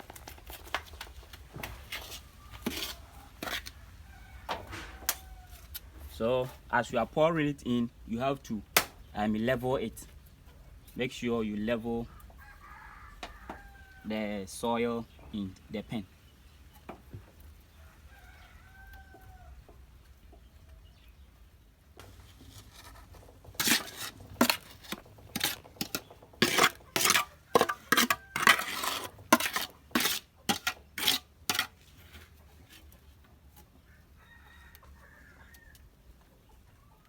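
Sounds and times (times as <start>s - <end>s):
gritty soil scraping: 0.0s - 10.2s, 22.0s - 33.7s.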